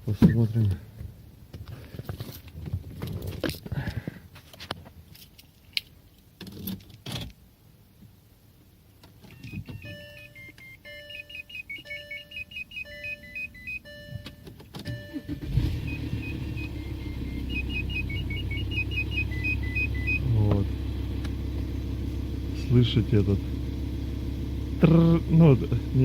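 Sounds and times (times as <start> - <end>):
repeating electronic chime: 9.4 - 14.2
diesel engine cranking and idling: 14.9 - 26.0.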